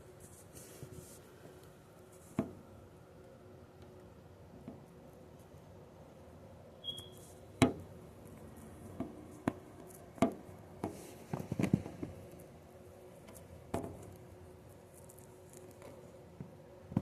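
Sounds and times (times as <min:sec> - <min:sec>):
brief high squeak: 0:06.8 - 0:07.3.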